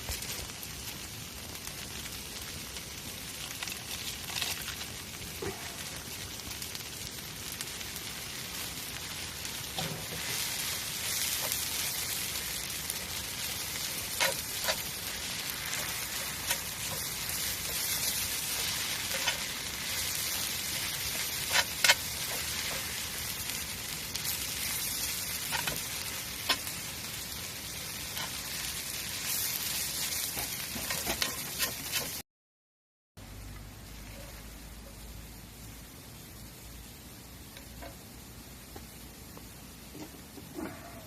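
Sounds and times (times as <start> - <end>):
campfire crackling and hissing: 0.0 - 32.2, 33.2 - 40.7.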